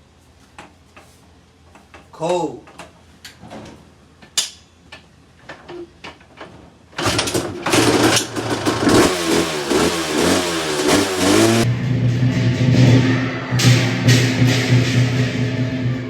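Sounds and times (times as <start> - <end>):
motorcycle engine revving: 7.0 - 16.0
steady low drone: 11.1 - 16.0.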